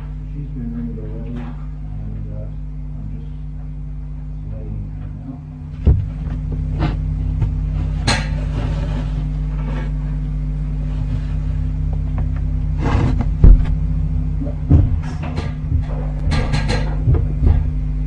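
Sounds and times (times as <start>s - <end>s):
electrical hum: 0.0s - 18.0s
sharp thump: 5.8s - 6.6s, 13.4s - 13.8s, 14.7s - 16.4s
knocks and rustles in nestbox: 5.8s - 8.8s.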